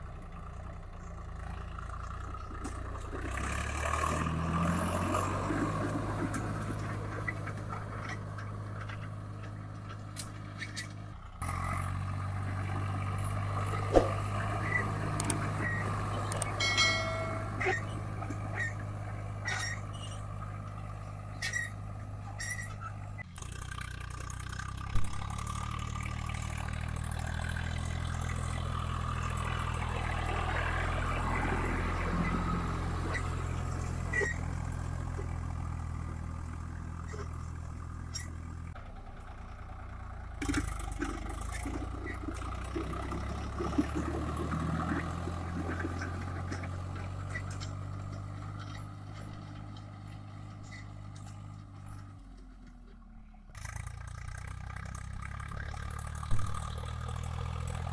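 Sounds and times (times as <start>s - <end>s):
tractor diesel engine running: 0.0s - 57.9s
sharp metal clanks: 16.3s - 20.2s.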